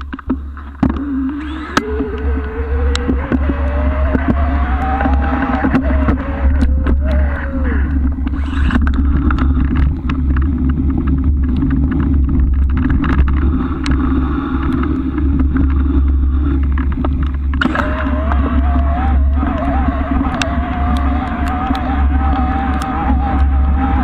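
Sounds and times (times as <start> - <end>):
wind buffeting camera: 0.0 - 24.0
wavering tone: 0.9 - 8.7, 17.6 - 24.0
bike rattling clicks and knocks: 7.9 - 24.0.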